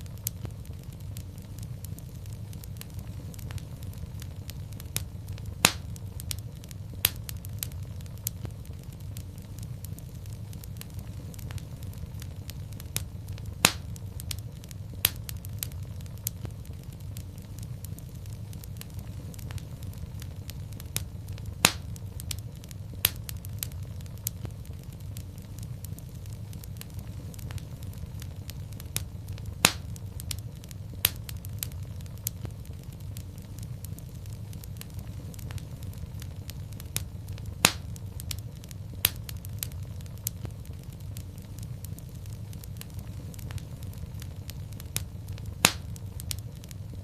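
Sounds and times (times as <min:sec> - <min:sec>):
fire snaps and pops: 0:00.0 - 0:47.0
low rumble of flames: 0:00.0 - 0:47.0.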